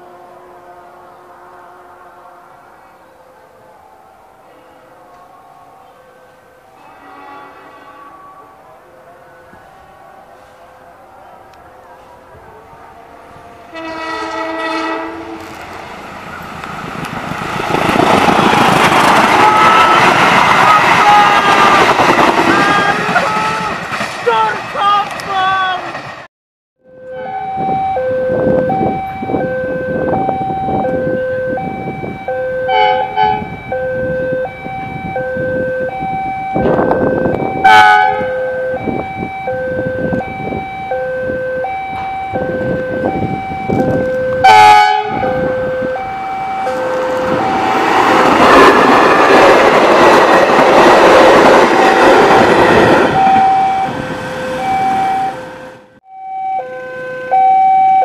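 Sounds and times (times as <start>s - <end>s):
train horn blasts: 0.0s - 3.0s, 6.7s - 8.8s, 13.3s - 15.6s, 19.3s - 23.8s, 26.9s - 31.7s, 32.3s - 34.5s, 36.6s - 39.0s, 42.4s - 47.8s
train wheels rushing on rails: 13.4s - 26.3s, 45.0s - 55.9s
level crossing alarm: 26.8s - 58.0s.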